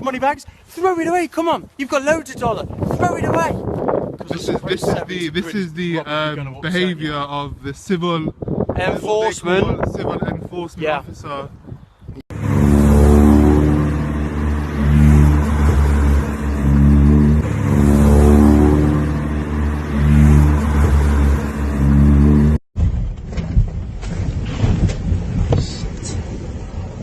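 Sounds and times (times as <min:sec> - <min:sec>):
car engine revving: 0:12.3 - 0:22.6.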